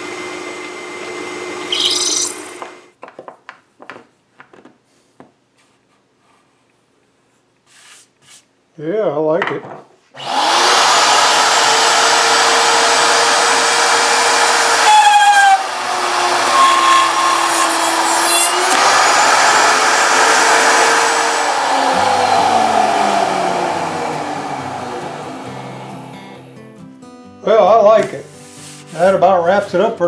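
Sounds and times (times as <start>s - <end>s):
router motor whining: 0.0s - 2.8s, 10.2s - 26.6s.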